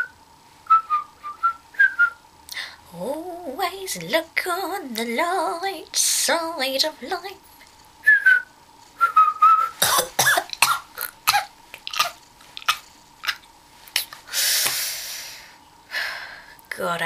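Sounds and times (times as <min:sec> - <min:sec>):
person whistling: 0:00.7 - 0:02.2, 0:08.1 - 0:09.8
person coughing: 0:09.8 - 0:13.4
mouth clicks: 0:10.5 - 0:14.2
breathy exhale: 0:14.3 - 0:16.6.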